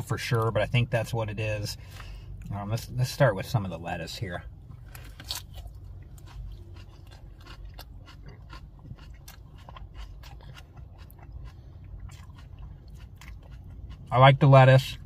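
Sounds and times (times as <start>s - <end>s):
low steady hum: 0.0s - 15.0s
man chewing crunchy lettuce: 4.6s - 15.0s.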